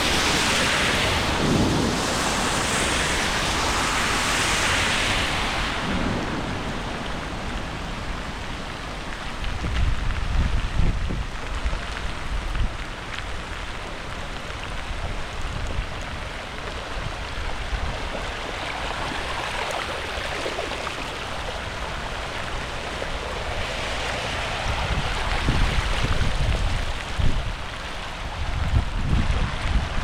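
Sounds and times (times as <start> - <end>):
running water: 0.0 - 10.0, 10.8 - 30.0
rain: 0.0 - 30.0.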